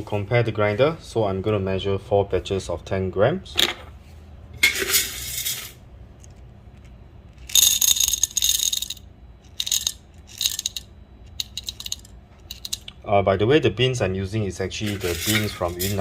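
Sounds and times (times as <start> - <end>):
coffee beans rattling into container: 7.4 - 12.9, 14.7 - 16.0.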